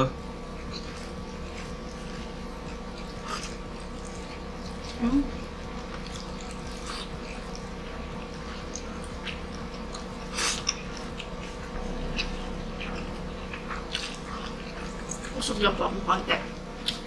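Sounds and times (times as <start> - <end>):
low steady hum: 0.0 - 17.0
chewing and lip smacks: 5.6 - 15.4.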